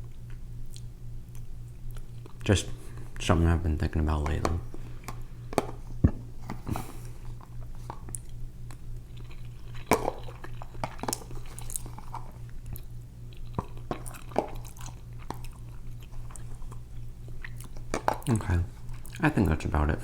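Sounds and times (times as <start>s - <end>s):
close chewing and mouth clicks: 0.0s - 3.0s, 4.4s - 19.6s
steady low hum: 0.0s - 20.0s.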